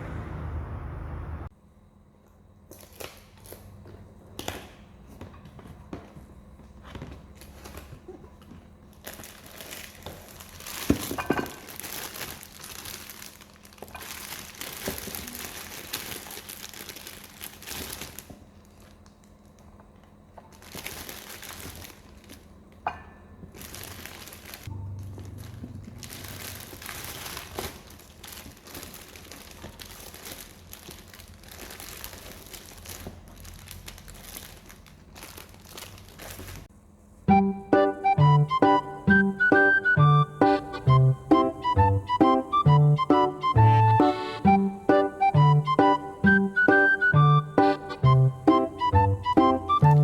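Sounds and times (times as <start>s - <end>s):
wrapping crinkling: 7.2s - 19.8s, 20.5s - 22.8s, 23.4s - 36.7s.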